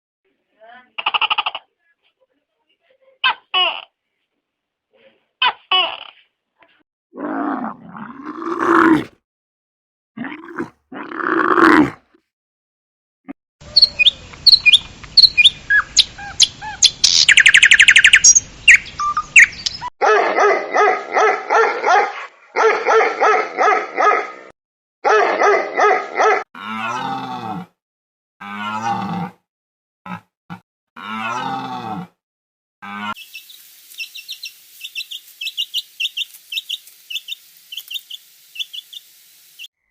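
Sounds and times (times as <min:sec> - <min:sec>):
low falling animal call: 0:07.2 - 0:09.1, 0:10.2 - 0:12.0
drawn-out bending animal calls: 0:08.3 - 0:09.1, 0:10.4 - 0:10.7, 0:11.3 - 0:12.0
rapid repeated barks: 0:08.5 - 0:09.1, 0:10.4 - 0:10.8, 0:20.0 - 0:24.4, 0:25.0 - 0:26.4
bird chirps: 0:33.2 - 0:39.7.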